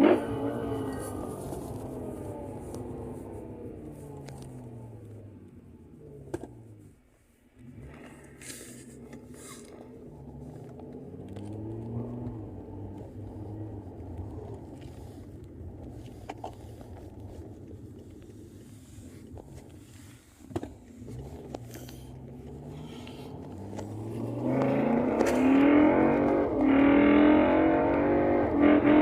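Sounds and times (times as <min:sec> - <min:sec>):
car engine running: 0:00.0 - 0:29.0.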